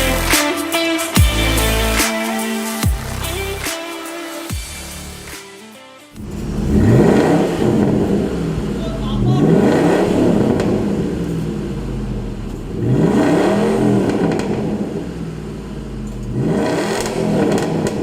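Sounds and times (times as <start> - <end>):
truck engine revving: 6.2 - 18.0.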